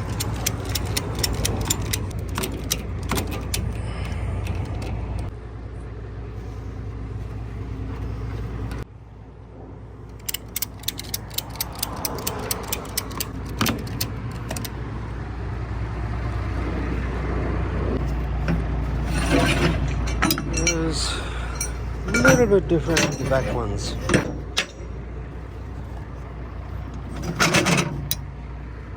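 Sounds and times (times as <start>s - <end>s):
ratchet strap clicking: 0.0s - 3.8s, 10.1s - 14.8s
vehicle engine idling: 0.0s - 28.9s.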